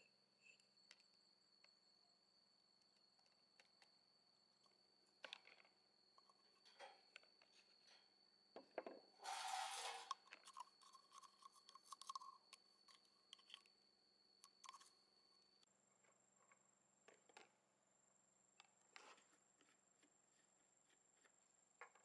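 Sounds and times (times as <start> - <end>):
faint high-pitched whine: 0.0 - 22.0
small clicks and knocks: 4.7 - 13.8
scraping rustle: 9.2 - 11.3.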